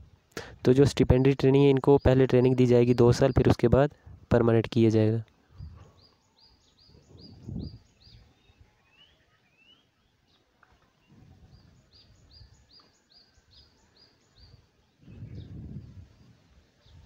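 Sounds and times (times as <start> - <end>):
bird chirping: 1.6 - 3.8, 4.4 - 17.0.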